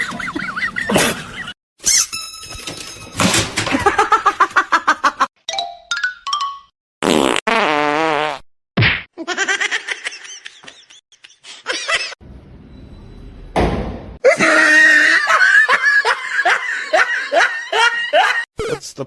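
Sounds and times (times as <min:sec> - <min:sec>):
person laughing: 0:14.2 - 0:18.8.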